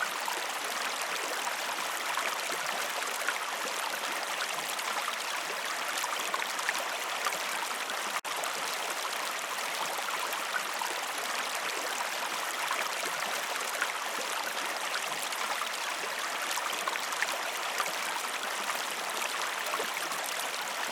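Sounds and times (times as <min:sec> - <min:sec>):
river water babbling: 0:00.0 - 0:20.9.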